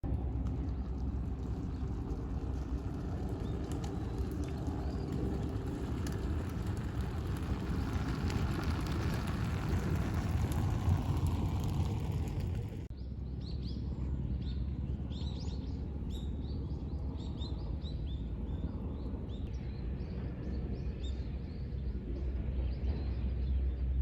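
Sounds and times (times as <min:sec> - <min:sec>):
steady low rumble: 0:00.0 - 0:24.0
rough rushing noise: 0:00.9 - 0:12.9.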